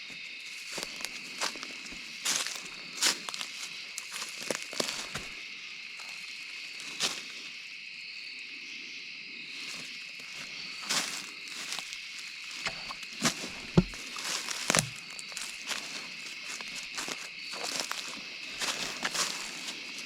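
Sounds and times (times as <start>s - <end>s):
night insects chirring: 0.0s - 20.0s
footsteps on leaf litter: 0.5s - 5.3s, 10.4s - 20.0s.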